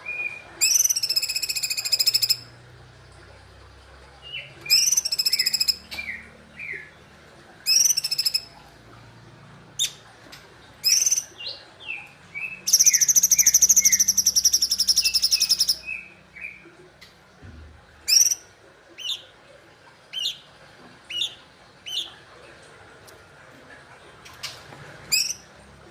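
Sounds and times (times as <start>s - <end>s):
songbird singing: 0.0s - 2.5s, 4.2s - 8.6s, 10.8s - 16.7s, 18.1s - 19.3s, 25.1s - 25.5s
rapid bird trill: 0.6s - 2.4s, 4.3s - 6.9s, 7.6s - 8.6s, 10.8s - 16.1s, 18.1s - 18.4s.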